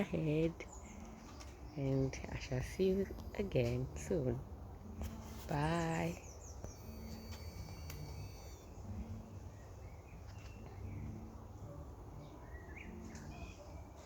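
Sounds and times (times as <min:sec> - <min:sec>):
low outdoor rumble: 0:00.0 - 0:14.0
faint bird chirps: 0:05.9 - 0:14.0.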